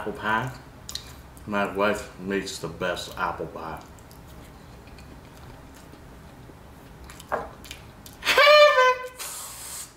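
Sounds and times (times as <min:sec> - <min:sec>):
person chewing: 0:03.8 - 0:08.2.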